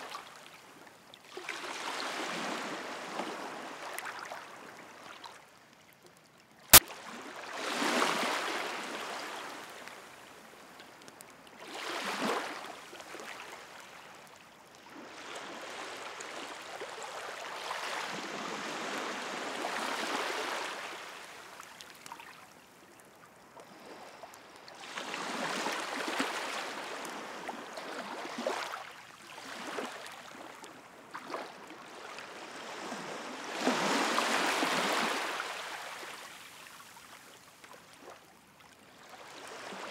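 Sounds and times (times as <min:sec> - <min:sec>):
sea waves washing onto shore: 0:06.7 - 0:22.4, 0:23.6 - 0:37.2.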